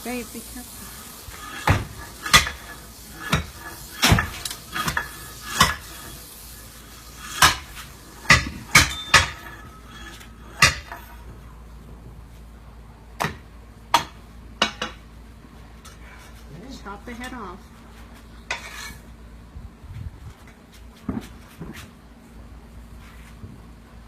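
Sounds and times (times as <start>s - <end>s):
metal tool striking hard ground: 1.4s - 6.2s, 7.2s - 11.2s.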